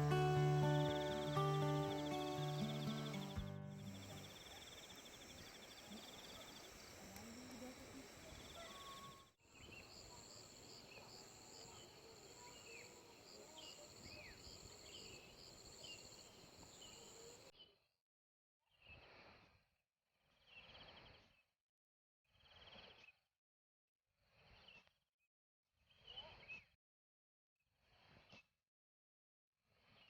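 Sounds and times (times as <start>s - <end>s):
insects trilling: 0.0s - 17.4s.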